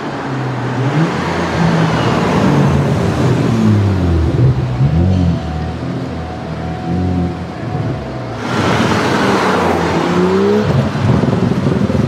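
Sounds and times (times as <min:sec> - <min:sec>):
car engine accelerating hard: 0:06.8 - 0:12.0.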